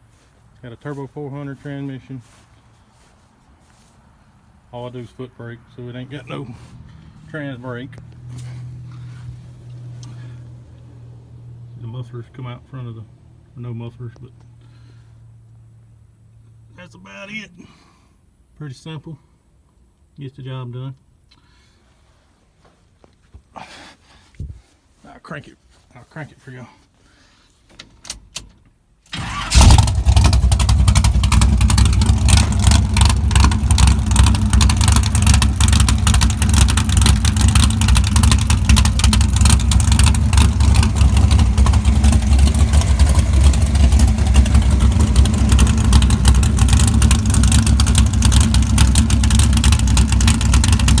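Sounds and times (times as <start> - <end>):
truck engine cranking and idling: 0.0 - 16.6, 27.6 - 51.0.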